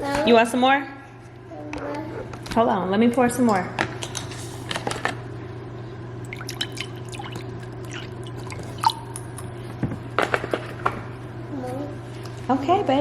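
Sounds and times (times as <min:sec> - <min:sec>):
steady low hum: 0:00.0 - 0:13.0
liquid dripping: 0:06.2 - 0:09.6
liquid pouring: 0:06.2 - 0:09.6.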